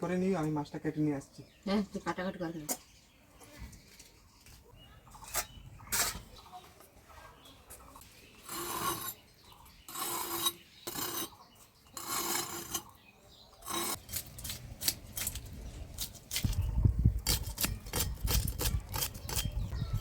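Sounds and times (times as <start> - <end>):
blade scraping food: 8.4 - 13.0, 13.6 - 15.4, 16.0 - 19.8.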